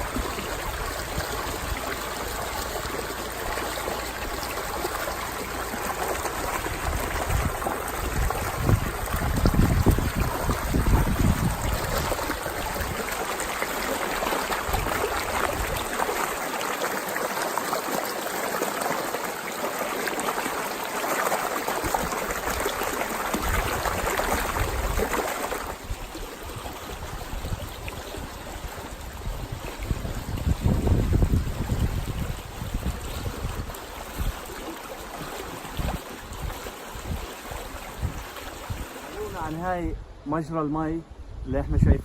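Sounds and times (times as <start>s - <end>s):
wind buffeting microphone: 0.0s - 3.3s, 4.1s - 16.0s, 21.8s - 34.6s, 35.4s - 40.2s, 41.1s - 42.0s
water flowing along stone channel: 0.0s - 39.9s.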